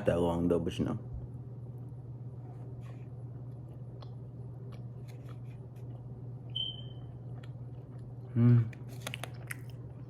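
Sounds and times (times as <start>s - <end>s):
chewing and mouth clicks: 3.4s - 6.1s, 6.7s - 10.0s.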